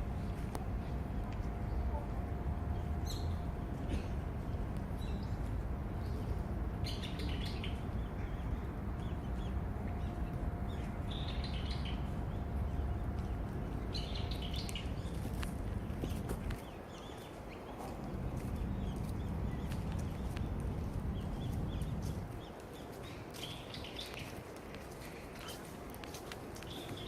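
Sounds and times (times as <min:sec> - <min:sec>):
small birds chirping: 0:04.9 - 0:24.4
low background rumble: 0:18.0 - 0:22.6.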